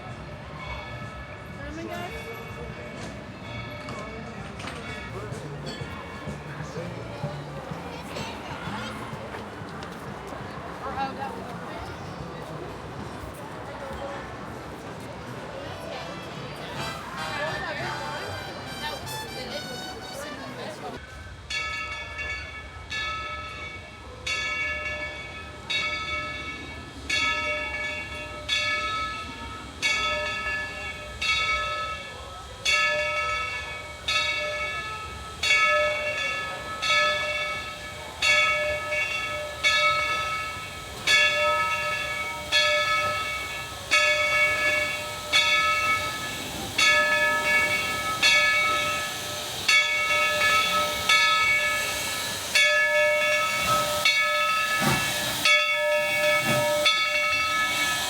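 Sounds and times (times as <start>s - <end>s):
steam locomotive bell ringing: 0.0s - 58.0s.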